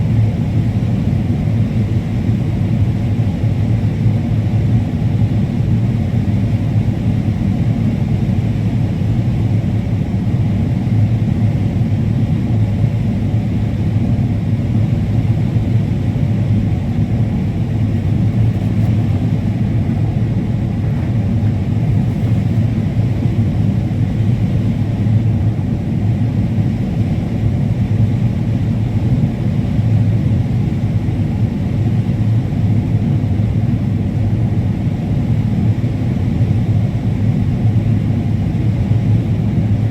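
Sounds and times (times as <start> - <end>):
combine harvester droning: 16.3 - 25.2.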